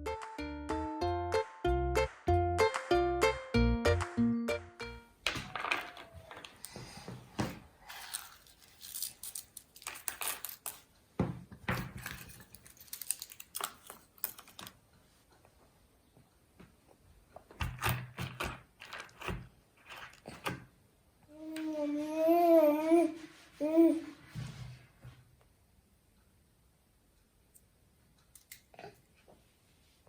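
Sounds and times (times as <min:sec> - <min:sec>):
small objects clicking and rustling: 0:05.2 - 0:06.8, 0:07.9 - 0:10.9, 0:11.7 - 0:14.8, 0:17.6 - 0:20.6.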